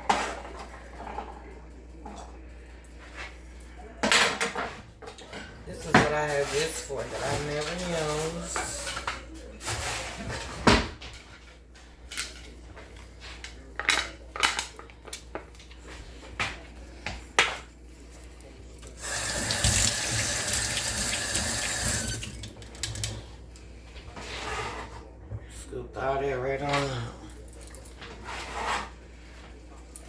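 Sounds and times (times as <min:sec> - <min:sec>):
tap running into a sink: 0:19.0 - 0:23.0.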